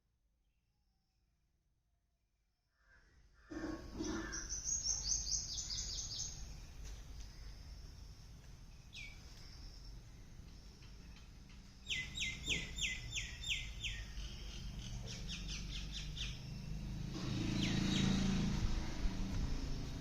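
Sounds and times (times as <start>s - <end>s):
bird chirping: 3.5s - 18.6s.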